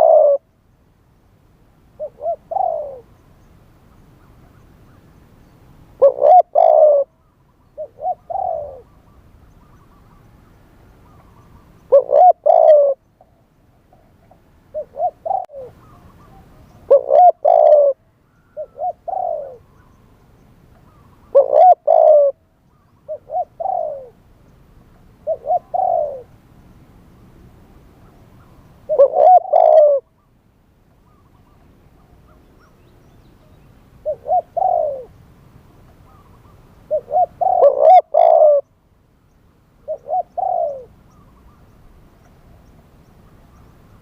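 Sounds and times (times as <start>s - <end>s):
dove cooing: 0.0s - 0.5s, 2.0s - 3.2s, 6.0s - 7.2s, 7.8s - 10.2s, 11.0s - 13.1s, 13.9s - 19.9s, 20.8s - 24.2s, 25.2s - 26.4s, 28.0s - 30.3s, 34.0s - 35.2s, 35.9s - 38.7s, 39.8s - 41.6s.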